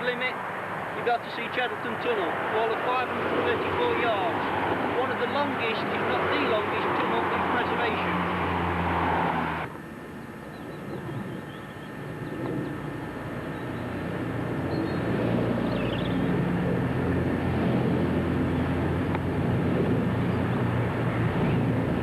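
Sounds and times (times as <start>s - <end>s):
engine drone: 0.0s - 22.0s
faint bird chirps: 10.2s - 14.0s.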